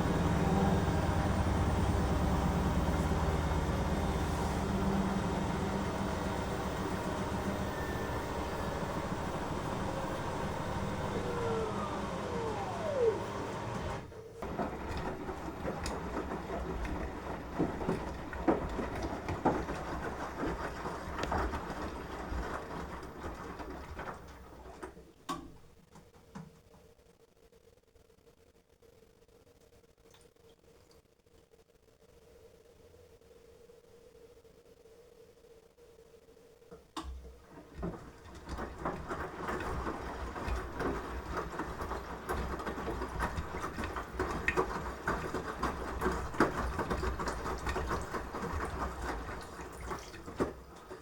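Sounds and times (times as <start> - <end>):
washing machine winding down: 0.0 - 24.9, 37.4 - 51.0.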